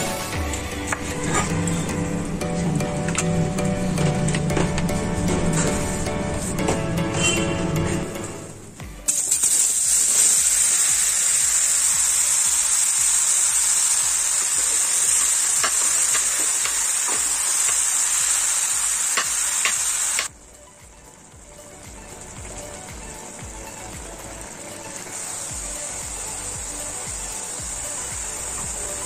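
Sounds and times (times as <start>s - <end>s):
mushrooms sizzling in hot oil: 9.0s - 20.3s, 22.0s - 29.0s.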